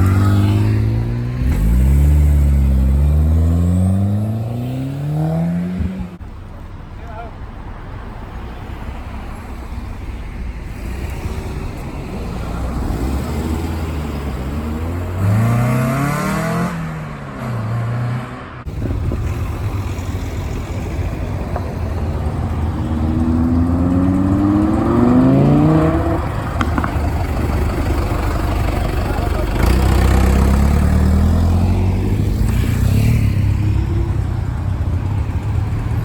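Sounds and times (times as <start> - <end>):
car accelerating away: 0.0 - 6.2, 12.2 - 35.9
cars driving off: 0.0 - 36.0
low engine rumble: 18.7 - 32.7.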